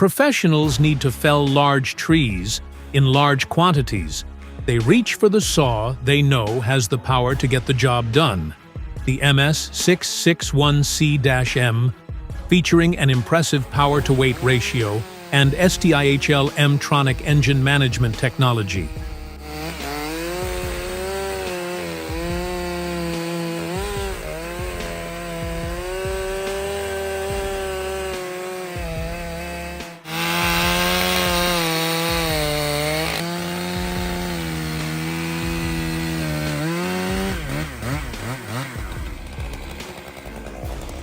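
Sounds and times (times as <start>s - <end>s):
chainsaw cutting wood: 5.9s - 8.5s, 12.9s - 41.0s.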